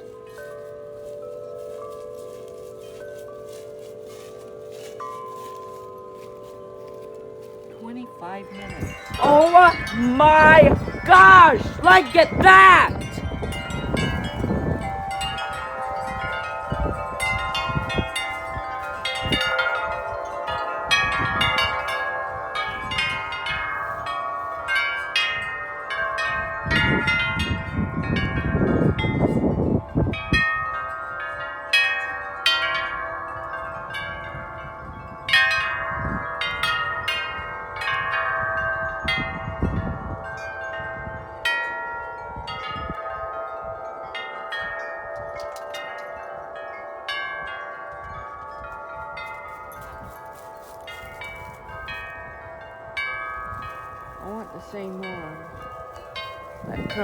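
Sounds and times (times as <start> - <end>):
metal wind chimes ringing: 0.0 - 57.0
low rumble of wind: 8.5 - 9.2, 10.6 - 11.8, 12.9 - 31.6, 32.8 - 45.8, 47.1 - 57.0.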